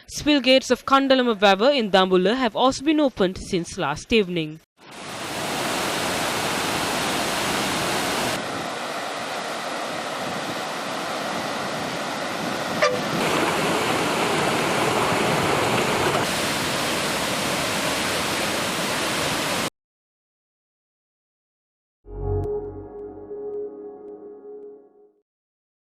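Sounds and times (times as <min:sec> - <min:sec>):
water rushing from spill gates: 0:04.9 - 0:19.7.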